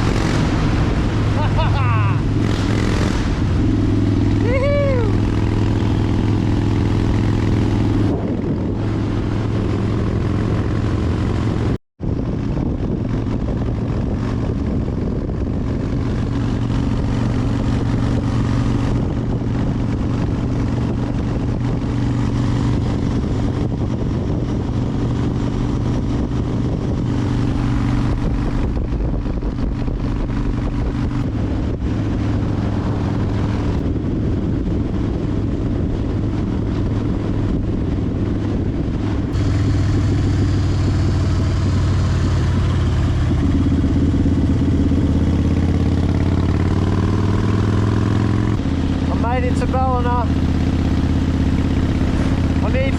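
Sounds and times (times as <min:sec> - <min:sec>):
motorcycle engine running: 0:00.0 - 0:52.9
rushing wind noise: 0:00.0 - 0:52.9.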